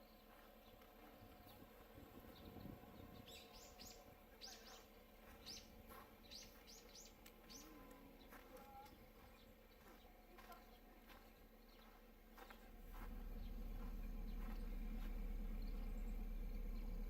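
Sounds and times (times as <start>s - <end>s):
faint bird chirps: 2.3s - 12.0s.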